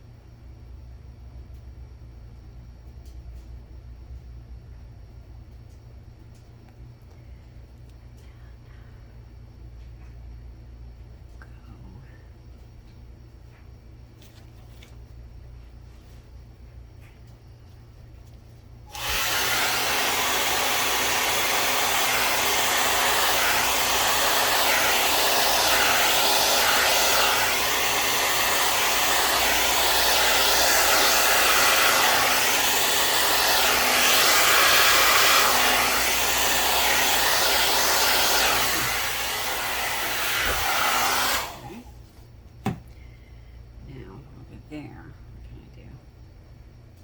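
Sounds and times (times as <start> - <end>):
hair dryer blowing: 18.9 - 42.0.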